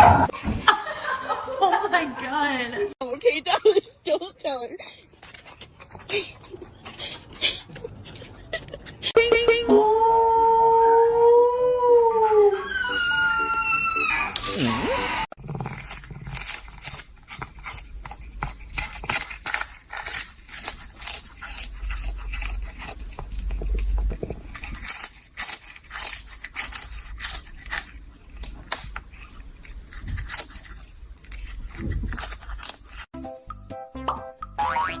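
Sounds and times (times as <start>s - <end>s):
scraping and crackling: 15.3s - 33.1s.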